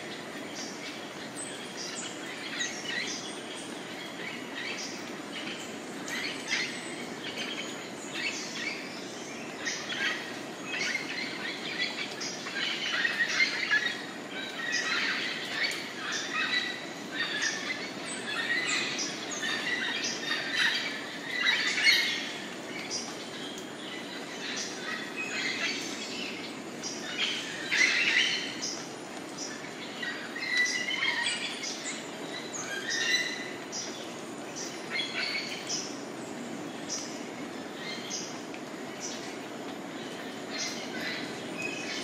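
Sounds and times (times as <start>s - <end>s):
birds chirping and squawking: 9.5s - 36.0s.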